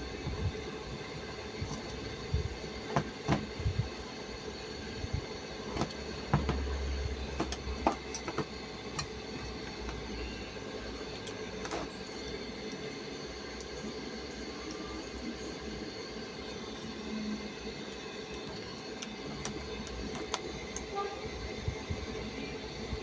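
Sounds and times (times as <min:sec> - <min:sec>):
steady hum: 0:00.0 - 0:23.0
sharp clicks and knocks: 0:02.9 - 0:03.8, 0:05.7 - 0:10.0.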